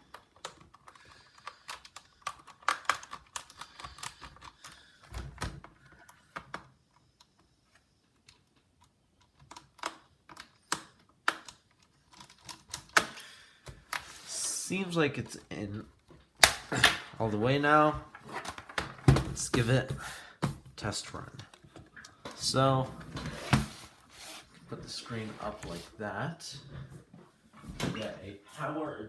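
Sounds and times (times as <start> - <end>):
screwdriver clicking on plastic: 0.1 - 4.8.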